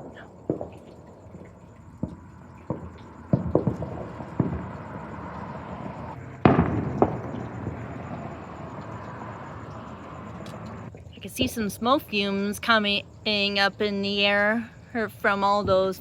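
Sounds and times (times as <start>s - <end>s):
firecrackers banging: 2.0s - 10.9s
loud firework bang with rumble: 2.0s - 10.9s.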